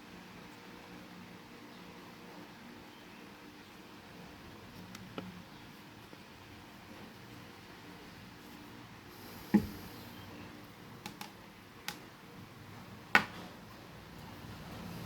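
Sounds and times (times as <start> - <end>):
faint room hum: 0.0 - 15.0
sharp clicks and light knocks: 11.0 - 12.0.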